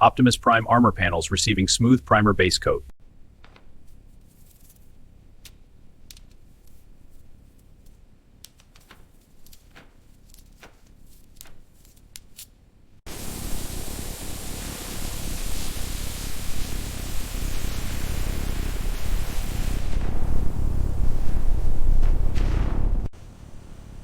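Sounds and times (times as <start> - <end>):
paint spray gun hissing: 13.1 - 20.0
faint low rumble: 18.3 - 24.0.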